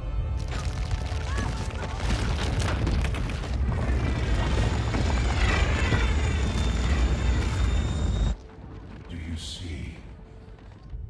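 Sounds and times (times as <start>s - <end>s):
film score music: 0.0s - 11.0s
deep rumbling: 0.2s - 9.2s
cracking and crashing debris: 0.3s - 9.1s.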